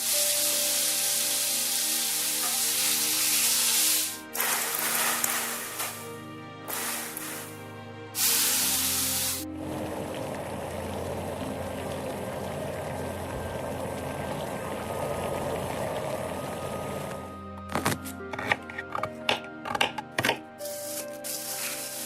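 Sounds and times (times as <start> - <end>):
steady hiss: 0.0 - 9.4, 20.6 - 22.0
background music: 0.0 - 22.0.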